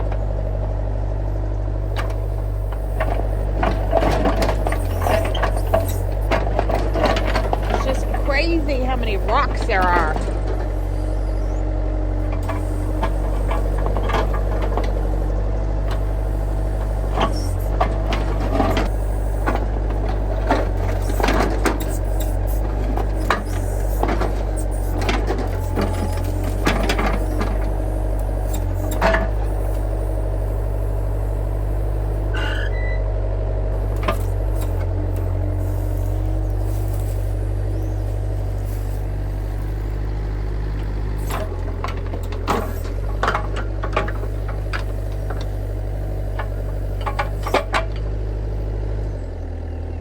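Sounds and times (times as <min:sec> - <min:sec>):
excavator engine running: 0:00.0 - 0:50.0
bucket clanking and scraping rock: 0:03.0 - 0:10.8.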